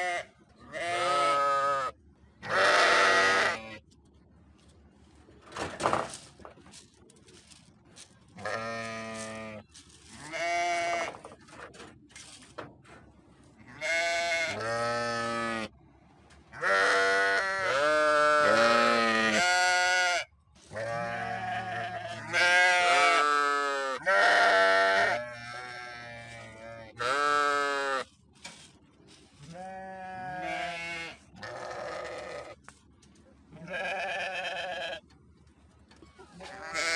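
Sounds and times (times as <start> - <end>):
sheep bleating: 0.0 - 3.8, 8.4 - 9.6, 10.2 - 11.2, 13.7 - 15.7, 16.6 - 28.1, 29.4 - 32.6, 33.6 - 35.0, 36.4 - 36.9.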